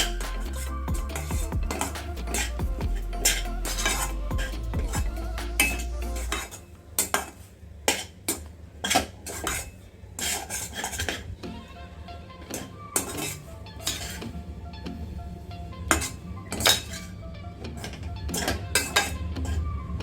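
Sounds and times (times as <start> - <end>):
low hum: 0.0 - 6.9
spoon scraping a pan: 8.8 - 11.3.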